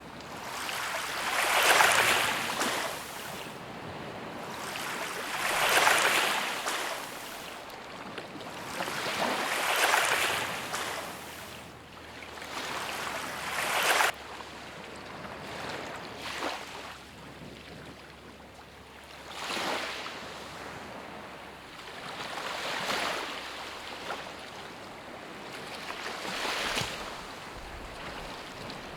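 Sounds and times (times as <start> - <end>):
sea waves washing onto shore: 0.0 - 14.2, 22.0 - 28.9.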